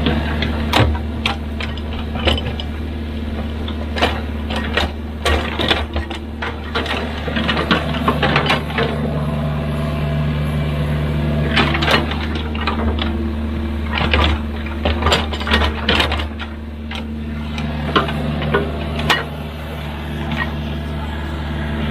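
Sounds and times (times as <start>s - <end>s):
machine knocks and clanks: 0.0s - 2.8s, 3.4s - 9.0s, 13.8s - 19.3s
excavator diesel engine: 0.0s - 21.9s.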